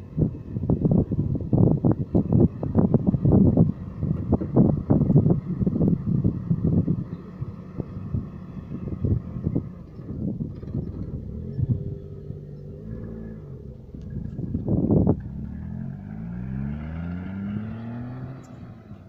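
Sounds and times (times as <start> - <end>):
sports car engine accelerating: 0.0 - 19.0.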